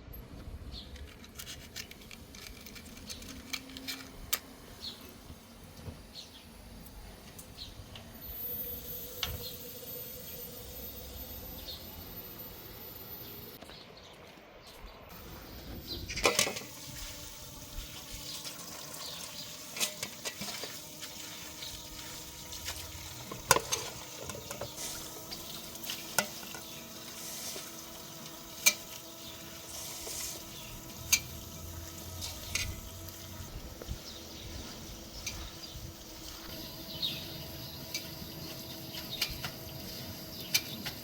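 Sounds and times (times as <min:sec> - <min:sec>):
low hiss of food cooking: 0:15.1 - 0:36.8.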